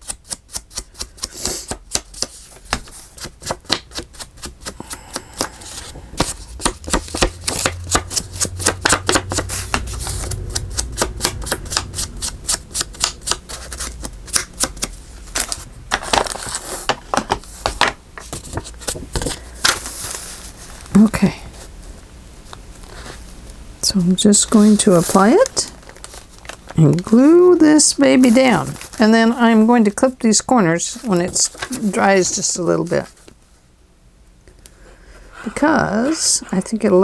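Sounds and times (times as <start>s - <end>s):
low hum: 5.0s - 16.4s.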